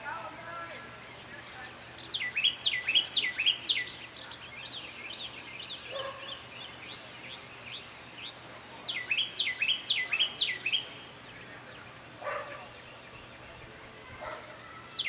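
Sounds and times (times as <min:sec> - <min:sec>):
faint bird chirps: 0:00.7 - 0:15.0
songbird whistling: 0:02.0 - 0:07.5, 0:08.9 - 0:10.9.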